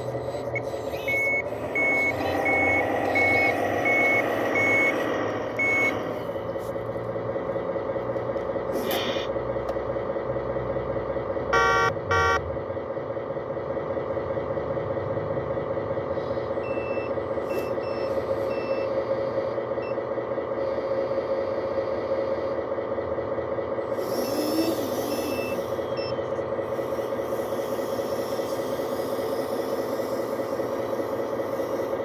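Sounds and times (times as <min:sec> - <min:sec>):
heavy machine engine running: 0:00.0 - 0:32.0
faint high beeps: 0:00.4 - 0:06.0, 0:11.6 - 0:12.4
horn blasts: 0:11.5 - 0:12.5.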